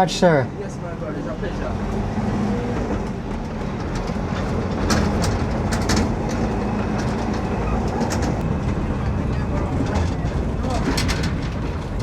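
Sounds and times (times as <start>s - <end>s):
car engine and road rumble: 0.0s - 12.0s
sharp rattles: 3.0s - 12.0s.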